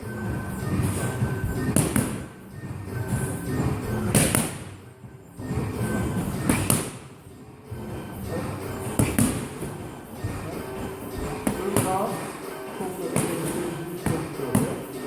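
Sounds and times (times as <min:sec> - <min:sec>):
background music: 0:00.0 - 0:15.0
punches smacking boxing pads: 0:01.2 - 0:02.4, 0:03.9 - 0:04.8, 0:06.2 - 0:07.2, 0:08.8 - 0:10.5, 0:11.1 - 0:12.3, 0:13.1 - 0:14.9.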